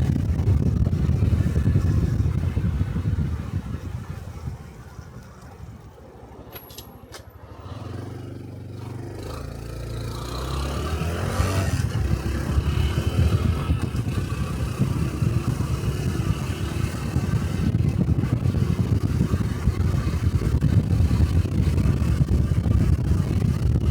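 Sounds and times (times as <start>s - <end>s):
motorcycle engine and exhaust: 0.0s - 23.9s.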